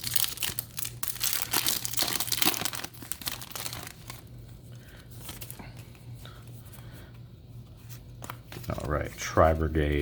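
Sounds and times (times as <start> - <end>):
foil wrapper crinkling and tearing: 0.0 - 4.3.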